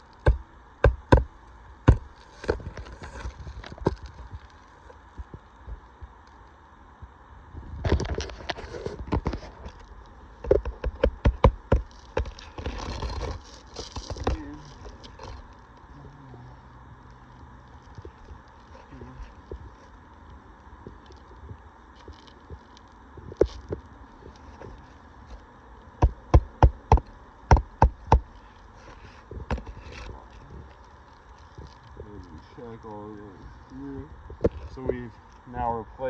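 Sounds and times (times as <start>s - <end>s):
scraping on shingles: 2.0s - 4.1s, 11.7s - 15.4s.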